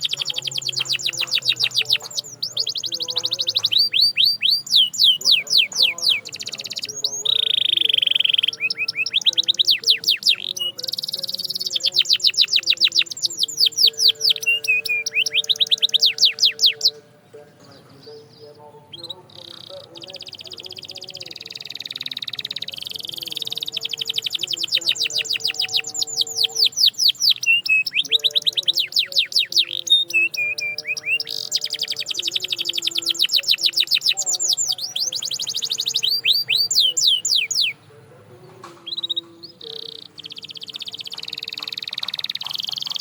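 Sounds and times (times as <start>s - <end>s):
canary singing trills: 0.0s - 43.0s.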